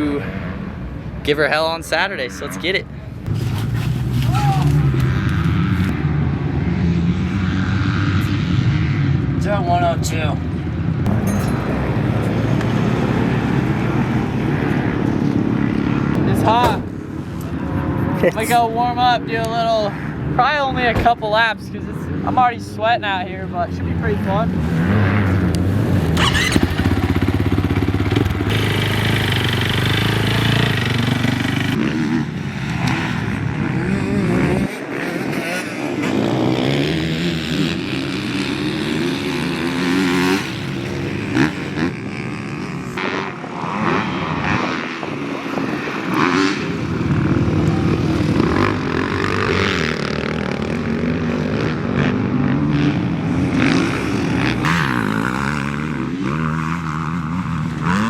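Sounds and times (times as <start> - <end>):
motorbike engine revving: 24.5 - 58.0.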